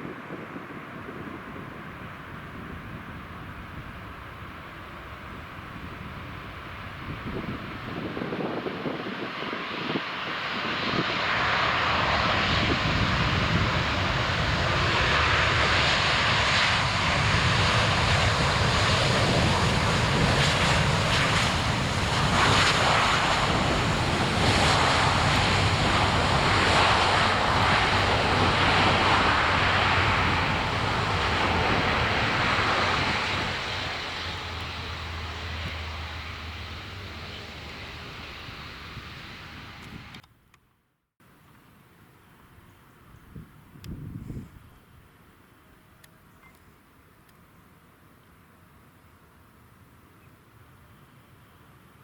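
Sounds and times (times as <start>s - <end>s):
jet engine roar: 0.0s - 40.3s.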